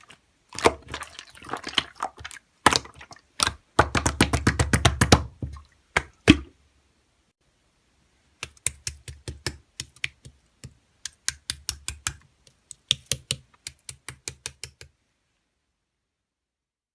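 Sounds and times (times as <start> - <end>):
slime squishing with clicks and pops: 0.5 - 5.4, 8.4 - 15.0.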